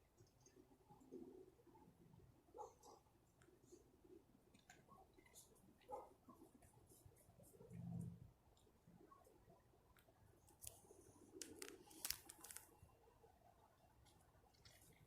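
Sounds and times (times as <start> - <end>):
sharp clicks and crackles: 9.9 - 12.9.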